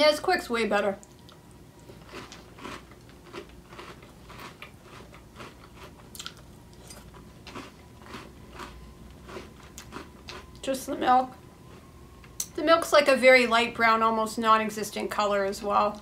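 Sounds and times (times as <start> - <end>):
chewing cereal crunches: 1.0 - 10.6.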